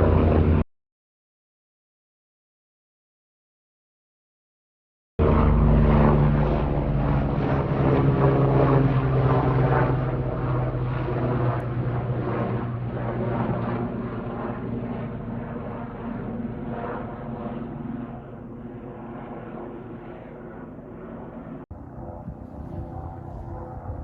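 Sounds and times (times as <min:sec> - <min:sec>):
helicopter flying: 0:00.0 - 0:00.6, 0:05.2 - 0:24.0.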